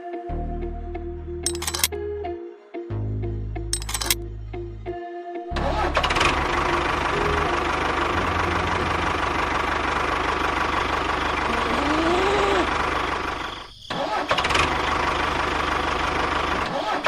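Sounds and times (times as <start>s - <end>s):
small tractor engine running: 1.5s - 1.9s, 3.8s - 4.2s, 5.6s - 17.0s.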